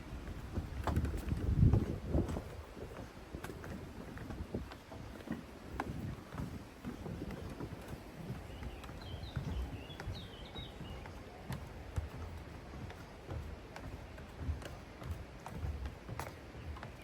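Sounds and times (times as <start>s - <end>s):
wind rumbling on microphone: 0.0s - 11.6s
footsteps on stony ground: 0.0s - 17.0s.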